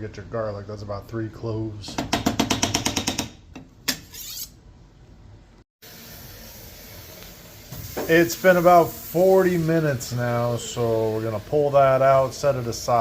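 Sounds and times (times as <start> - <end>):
faint steady hiss: 5.9 - 13.0.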